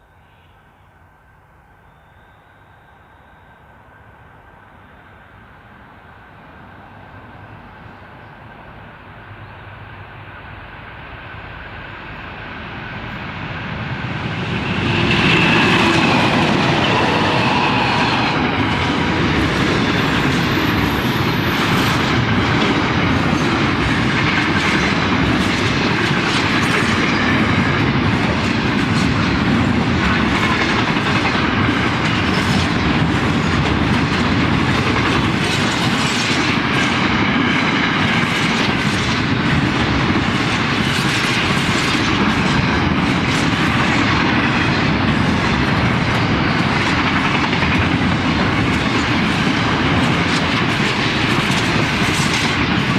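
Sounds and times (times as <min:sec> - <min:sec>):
train passing: 0:00.0 - 0:52.9.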